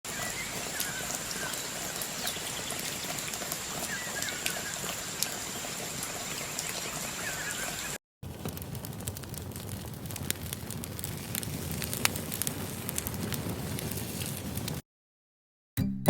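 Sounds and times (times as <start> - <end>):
chirping calls: 0.1 - 8.0
wood fire crackling and hissing: 0.1 - 14.8.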